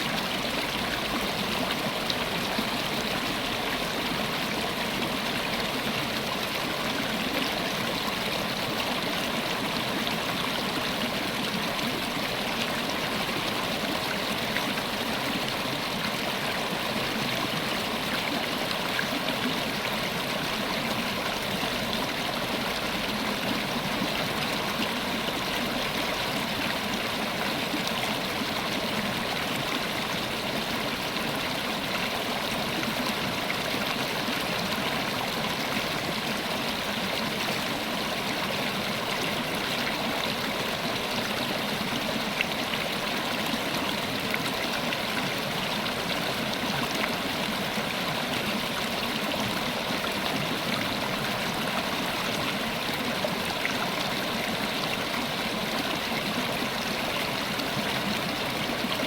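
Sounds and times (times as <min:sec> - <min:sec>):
river water flowing over rocks: 0:00.0 - 0:59.0.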